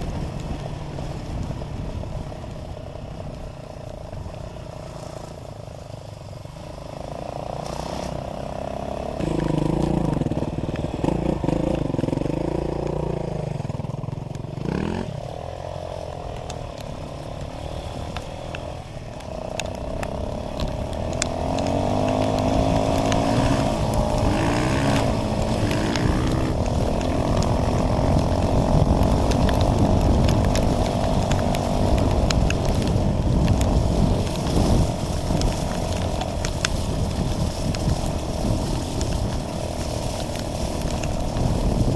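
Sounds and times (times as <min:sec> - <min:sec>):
dirt bike engine revving: 0:07.0 - 0:13.6, 0:14.6 - 0:15.9, 0:19.9 - 0:29.3.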